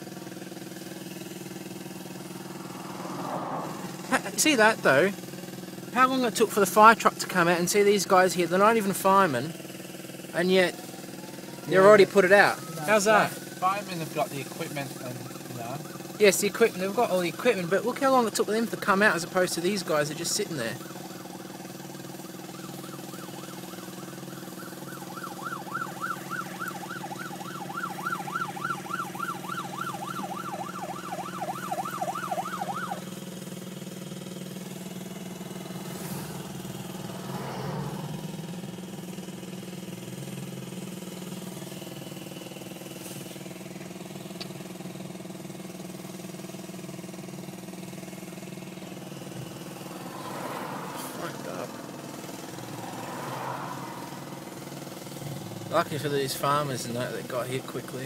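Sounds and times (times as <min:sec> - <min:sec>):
idling engine hum: 0:00.0 - 0:58.0
fire truck siren yelping: 0:00.7 - 0:05.0, 0:10.3 - 0:33.3, 0:34.6 - 0:42.4, 0:48.2 - 0:55.8.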